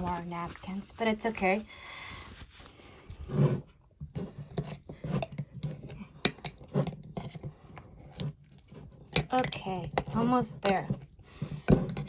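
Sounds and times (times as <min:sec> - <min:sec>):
paper rustling: 0:00.0 - 0:03.1.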